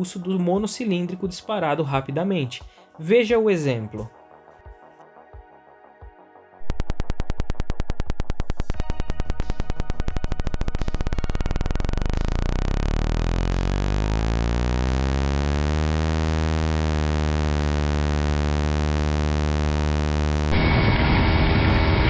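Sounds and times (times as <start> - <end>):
single-cylinder engine revving: 11.6 - 20.5.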